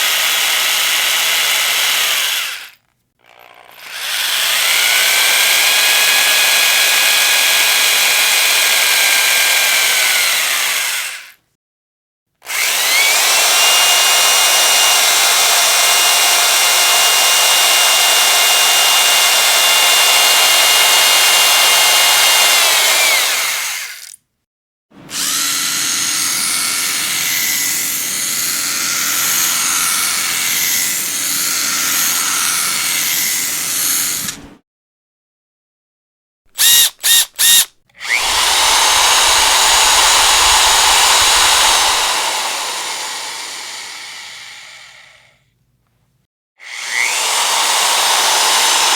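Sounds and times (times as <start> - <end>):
electric drill motor whine: 0.5 - 11.3, 12.5 - 24.1, 25.1 - 27.9, 36.6 - 45.3, 46.6 - 48.9.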